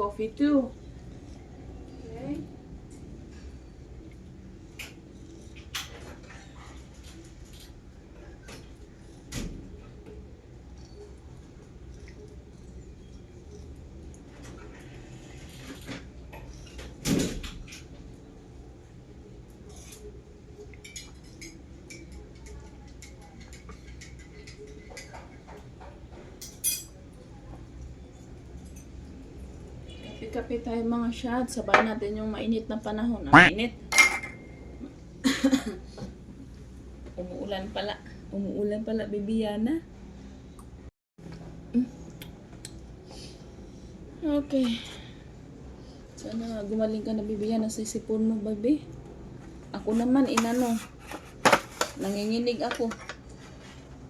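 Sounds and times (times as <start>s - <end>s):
tableware clicking and knocking: 26.4s - 26.9s.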